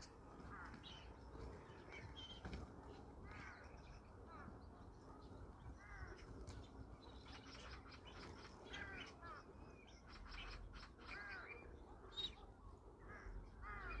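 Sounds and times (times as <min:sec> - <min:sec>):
crows cawing: 0:00.4 - 0:01.1, 0:03.2 - 0:04.5, 0:05.8 - 0:06.3, 0:08.3 - 0:09.5, 0:10.1 - 0:11.7, 0:13.0 - 0:14.0.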